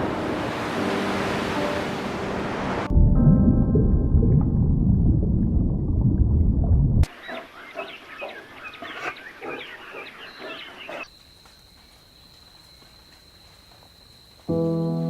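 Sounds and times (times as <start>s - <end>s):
music with sustained piano notes: 0.0s - 4.8s, 14.5s - 15.0s.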